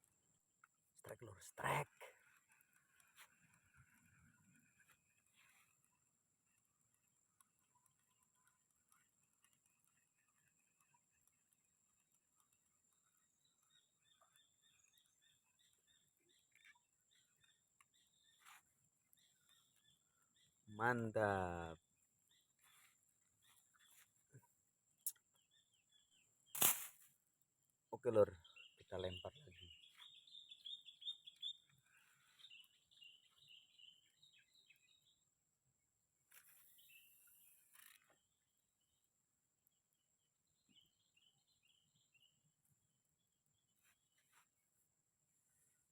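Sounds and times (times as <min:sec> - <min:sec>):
faint bird chirps: 0:01.0 - 0:26.6, 0:27.9 - 0:35.4, 0:36.3 - 0:39.1, 0:40.2 - 0:44.8
bird chirping: 0:12.8 - 0:21.4, 0:22.2 - 0:26.6, 0:28.0 - 0:35.4
brief rustle: 0:26.6 - 0:27.1.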